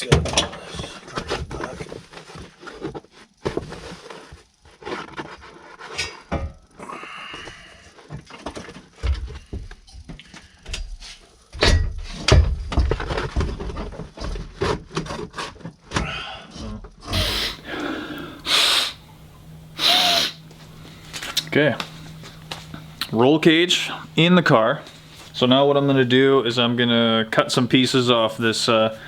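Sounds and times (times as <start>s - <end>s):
knocks and clunks of objects: 0.0s - 3.9s, 11.5s - 17.0s.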